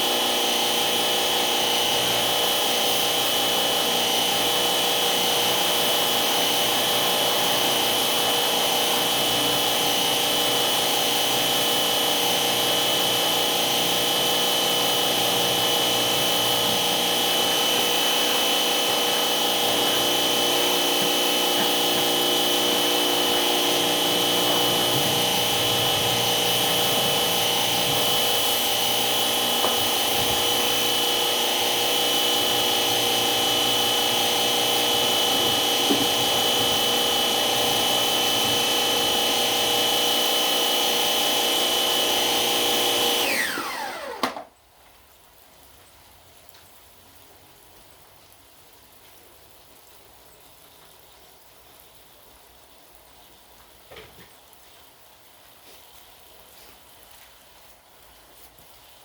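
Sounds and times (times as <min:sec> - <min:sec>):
motor whining: 0:00.2 - 0:44.4.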